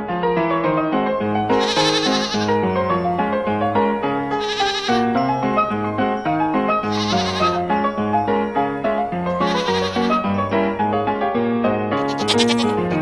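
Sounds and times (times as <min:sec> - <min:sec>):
cheerful background music: 0:01.0 - 0:11.4, 0:12.0 - 0:13.0
goat bleat sound effect: 0:01.4 - 0:02.6, 0:04.3 - 0:05.2, 0:06.8 - 0:07.6, 0:09.4 - 0:10.3, 0:12.0 - 0:13.0.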